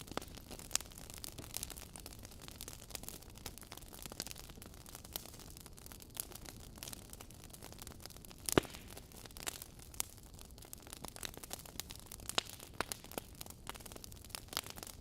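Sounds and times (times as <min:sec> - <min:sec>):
wood fire crackling: 0:00.0 - 0:15.0
sharp pops and snaps of logs: 0:08.4 - 0:10.1, 0:12.3 - 0:14.9.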